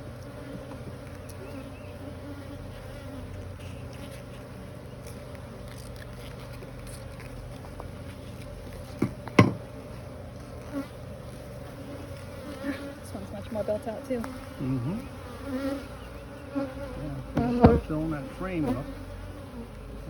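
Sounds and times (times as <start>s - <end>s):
bees buzzing: 0.0s - 5.6s, 8.5s - 20.0s
short sharp knocks: 17.4s - 17.9s.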